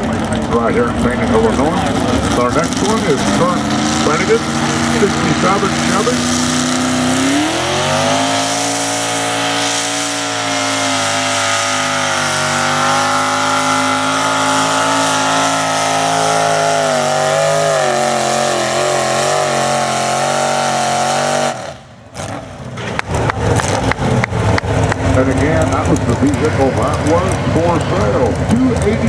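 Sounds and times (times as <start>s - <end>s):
truck engine at high revs: 0.0s - 29.0s
sharp clicks and knocks: 22.8s - 29.0s.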